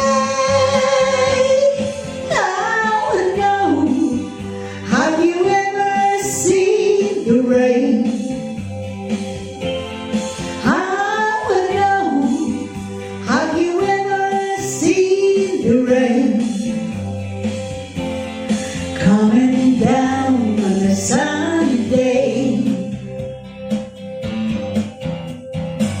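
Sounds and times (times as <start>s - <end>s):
person singing: 0.0s - 8.4s, 10.5s - 16.8s, 18.7s - 23.2s
guitar: 0.0s - 26.0s.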